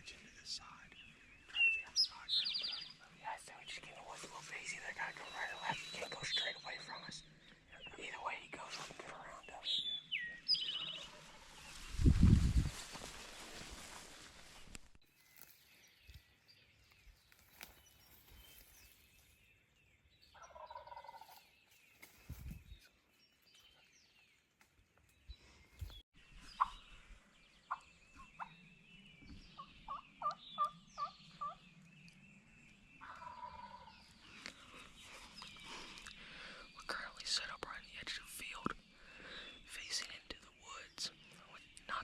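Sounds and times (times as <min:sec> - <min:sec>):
faint songbird chirping: 0:00.0 - 0:42.0
distant turkey gobbling: 0:33.1 - 0:34.0.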